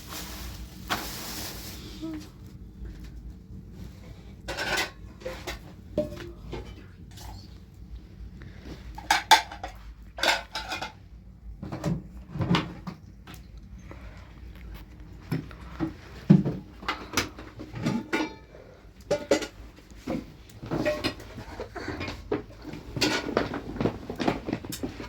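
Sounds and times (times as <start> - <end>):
dishes and utensils clattering: 4.4 - 7.5, 8.9 - 13.0, 15.8 - 25.0.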